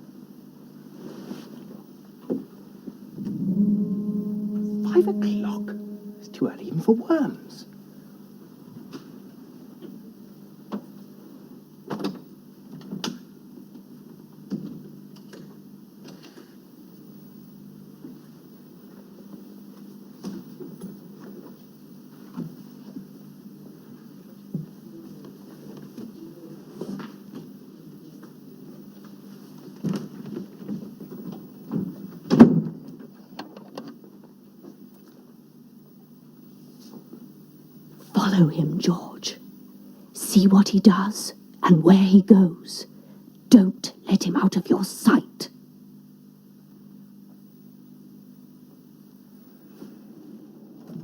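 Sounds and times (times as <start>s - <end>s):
steady low hum: 3.1s - 8.1s, 37.4s - 45.6s.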